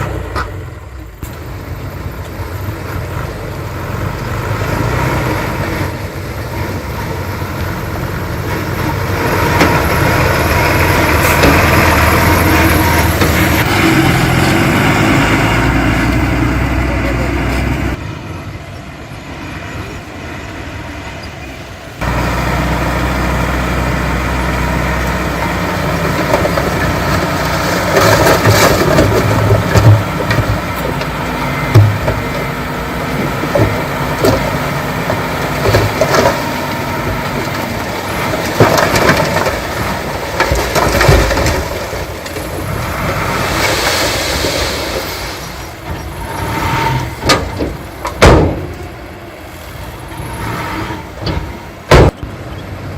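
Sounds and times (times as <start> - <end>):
diesel engine running: 0.0 - 52.9
metallic clanks and knocks: 45.8 - 49.0.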